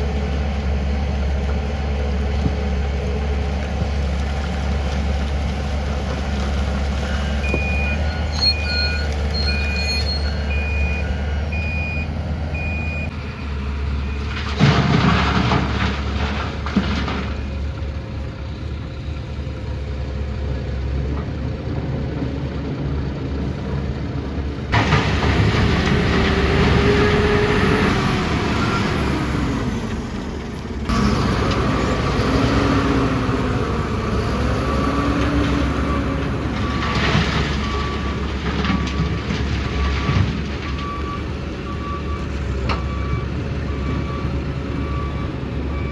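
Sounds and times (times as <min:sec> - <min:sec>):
diesel construction machinery running: 0:00.0 - 0:45.9
reversing beeper: 0:06.9 - 0:14.4, 0:30.9 - 0:45.9.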